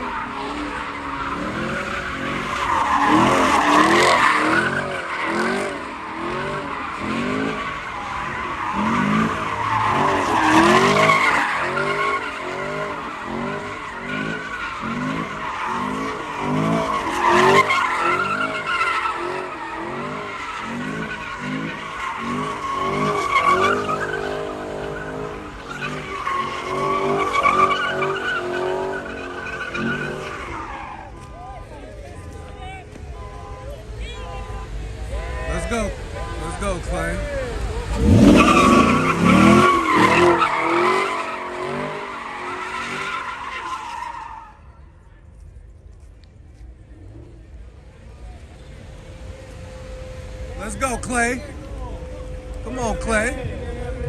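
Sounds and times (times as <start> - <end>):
car engine revving: 0.0 - 31.2, 34.5 - 44.4
tyre screech: 0.0 - 31.4, 37.4 - 44.9.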